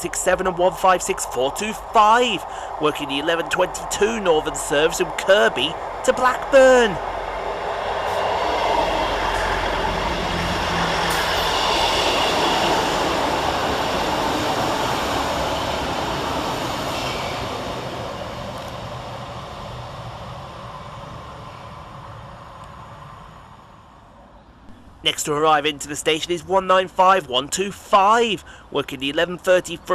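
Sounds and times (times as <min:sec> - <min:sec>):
train passing: 0:00.0 - 0:29.8.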